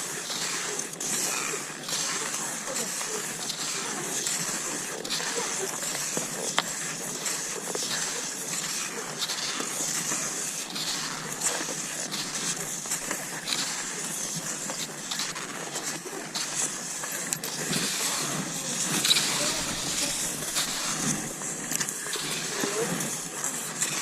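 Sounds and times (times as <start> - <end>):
sharp ski clicks: 0.0 - 24.0
skis gliding over snow: 0.0 - 24.0.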